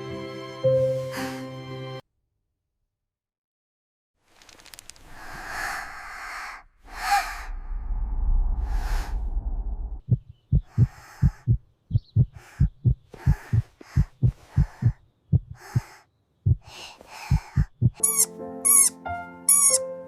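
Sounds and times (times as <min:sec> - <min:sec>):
heartbeat thuds: 0:10.0 - 0:18.0.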